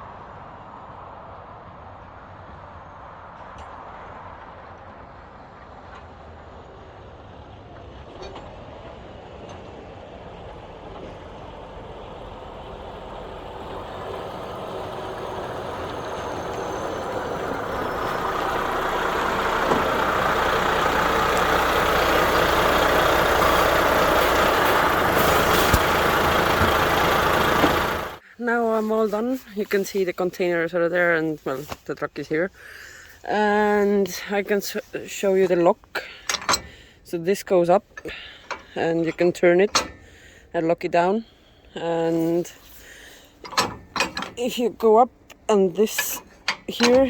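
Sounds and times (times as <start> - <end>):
road noise: 0.0 - 47.0
truck engine running: 6.7 - 28.2, 42.1 - 47.0.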